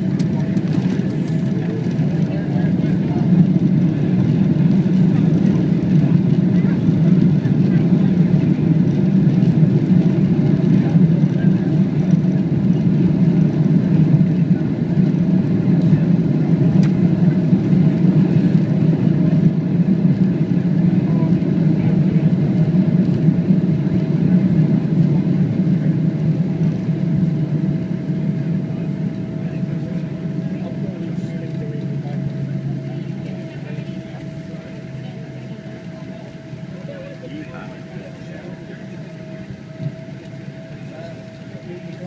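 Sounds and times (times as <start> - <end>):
aircraft cabin engine rumble: 0.0 - 42.0
thin steady whine: 25.6 - 42.0.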